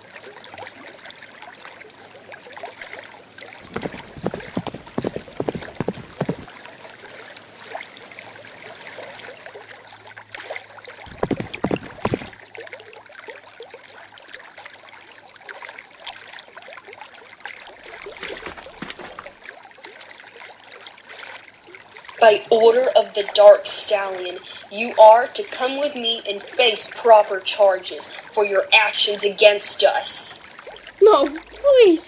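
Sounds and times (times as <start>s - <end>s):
stream babbling over stones: 0.0s - 32.0s
sharp water strokes: 2.8s - 7.8s, 10.3s - 12.4s, 17.6s - 20.4s.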